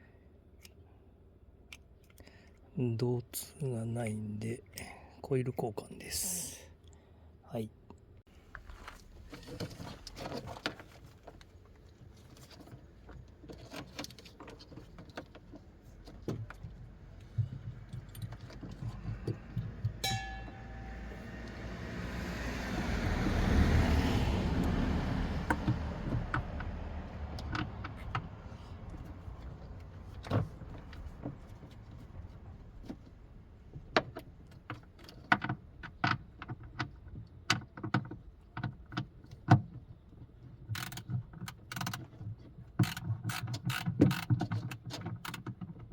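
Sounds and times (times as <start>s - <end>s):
vehicle passing: 19.4s - 27.8s
ringing metallic clink: 20.0s - 21.4s.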